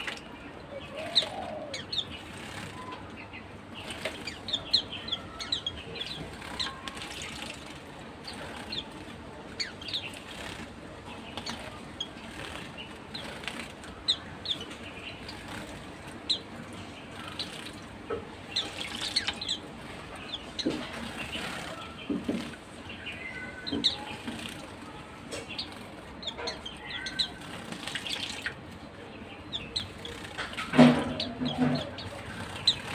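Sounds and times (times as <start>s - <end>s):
small birds chirping: 0.0s - 32.9s
wing fluttering: 3.7s - 16.4s.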